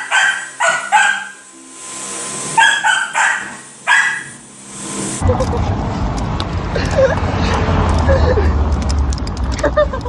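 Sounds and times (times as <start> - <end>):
dog yapping: 0.0 - 1.4, 2.6 - 4.4.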